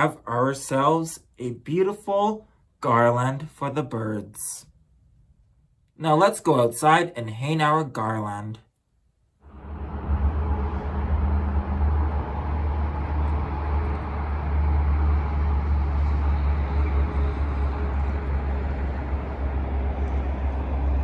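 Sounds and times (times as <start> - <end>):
outdoor rumble with hiss: 9.5 - 21.0.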